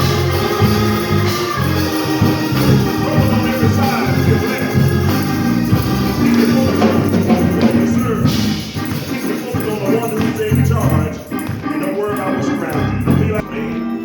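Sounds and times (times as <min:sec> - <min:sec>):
gospel singing over a band: 0:00.0 - 0:14.0
tambourine: 0:00.0 - 0:14.0.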